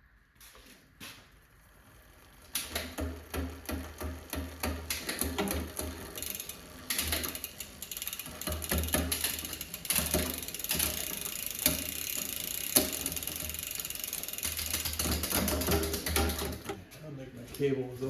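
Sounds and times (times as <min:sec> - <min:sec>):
bike chain ratcheting clicks: 0:02.2 - 0:16.7
sharp derailleur clicks: 0:04.9 - 0:16.7.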